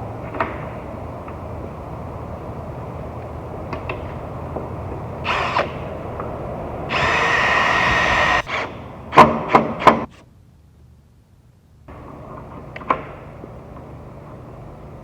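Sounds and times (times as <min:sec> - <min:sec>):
power drill running: 0:05.2 - 0:05.9, 0:06.8 - 0:08.8.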